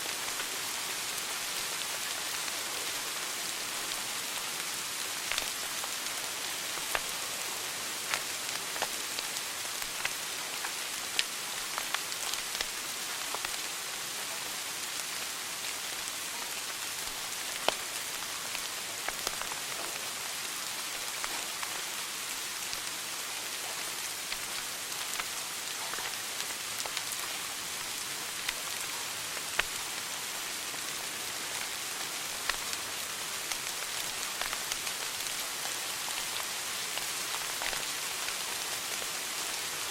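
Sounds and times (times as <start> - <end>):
fire crackling and popping: 4.6 - 7.2, 7.9 - 13.6, 16.6 - 39.1.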